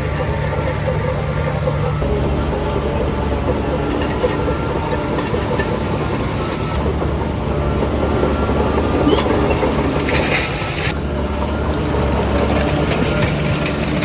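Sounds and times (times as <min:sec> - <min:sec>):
bulldozer diesel engine running: 0:00.0 - 0:14.0
steel tracks clattering: 0:00.0 - 0:14.0.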